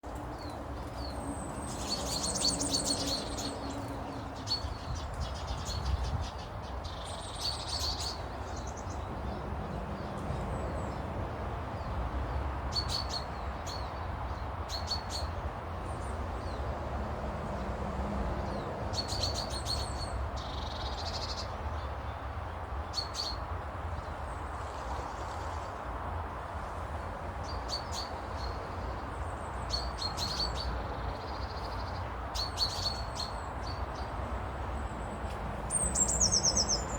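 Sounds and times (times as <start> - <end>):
small birds chirping: 0.2 - 11.2, 27.4 - 34.2, 34.8 - 36.9.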